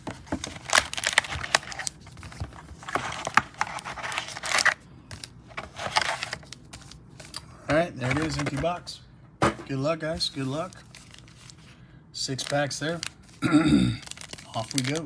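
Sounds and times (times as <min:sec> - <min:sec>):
cardboard tearing: 0:00.0 - 0:01.9
foil packs crinkling: 0:00.0 - 0:07.4, 0:08.0 - 0:08.8, 0:09.6 - 0:15.0.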